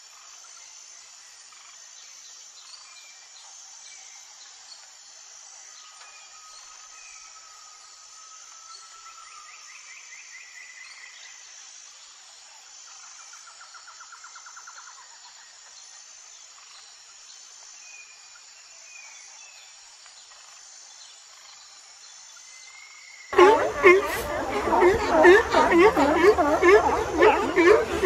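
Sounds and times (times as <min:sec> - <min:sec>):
chirps: 0:23.4 - 0:28.0
rapid trilling call: 0:23.4 - 0:28.0
whistled bird notes: 0:23.4 - 0:28.0.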